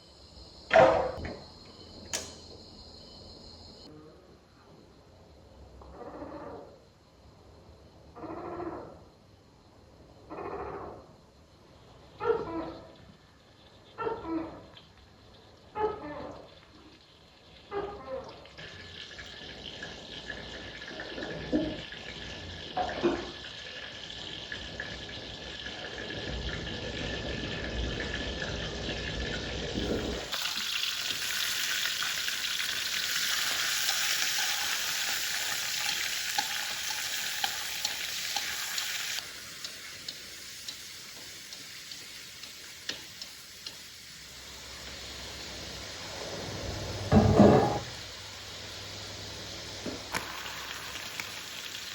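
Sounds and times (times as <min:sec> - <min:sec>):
food sizzling in hot oil: 0:18.6 - 0:51.9
knocks on pan: 0:47.1 - 0:47.9.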